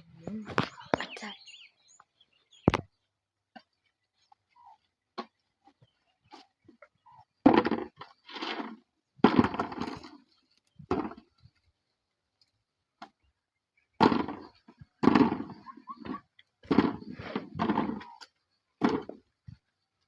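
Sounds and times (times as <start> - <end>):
loud sharp knocks with rattle: 9.2 - 10.0, 14.0 - 15.6.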